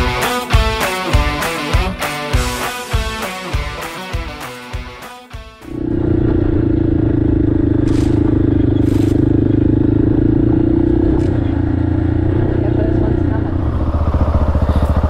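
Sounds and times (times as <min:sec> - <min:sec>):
motorcycle engine running: 0:05.6 - 0:15.0.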